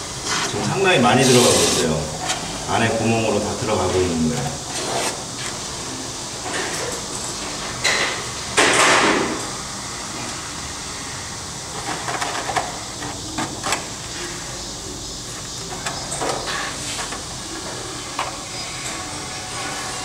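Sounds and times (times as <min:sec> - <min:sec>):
foam gun hissing spurts: 0:01.2 - 0:02.0.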